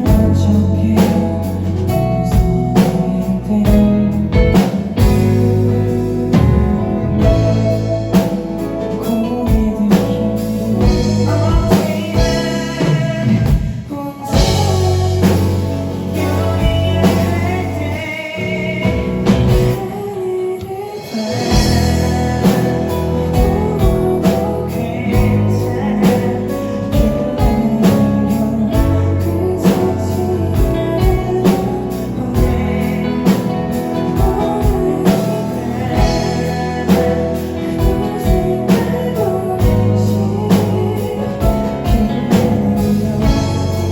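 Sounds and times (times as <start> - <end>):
drum kit: 0.0 - 43.9
guitar: 0.0 - 43.9
person singing: 0.0 - 43.9.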